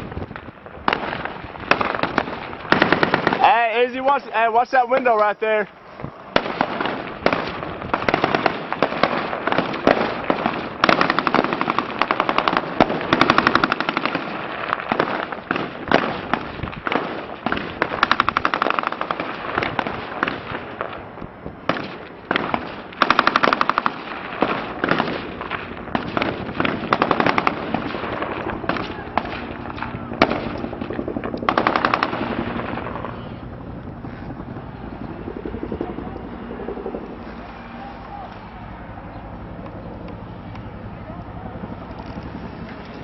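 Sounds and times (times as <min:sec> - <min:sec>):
automatic gunfire: 0:00.9 - 0:03.9, 0:06.3 - 0:20.6, 0:21.7 - 0:29.5, 0:30.2 - 0:32.8.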